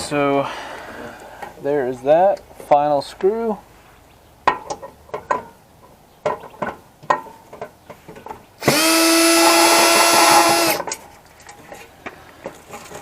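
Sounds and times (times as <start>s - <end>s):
power drill motor whining: 8.6s - 10.9s.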